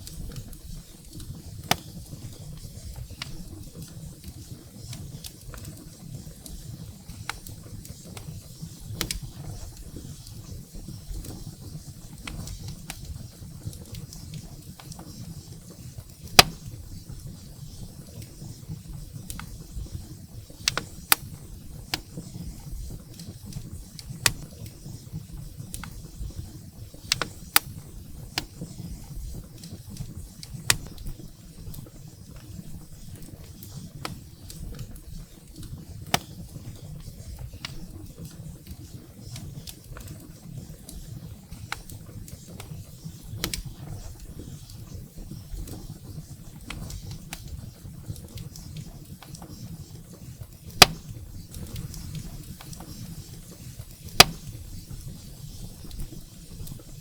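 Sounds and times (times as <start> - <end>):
firewood crackling and popping: 0.0 - 57.0.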